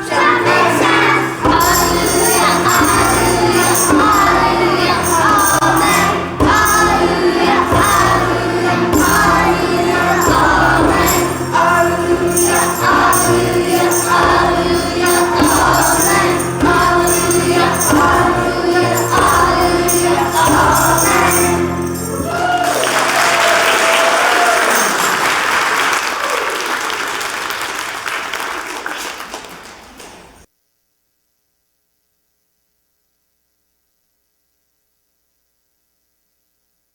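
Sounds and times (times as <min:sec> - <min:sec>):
children's choir singing a hymn: 0:00.0 - 0:23.1
instrumental accompaniment: 0:00.0 - 0:23.4
audience applause: 0:21.4 - 0:30.4.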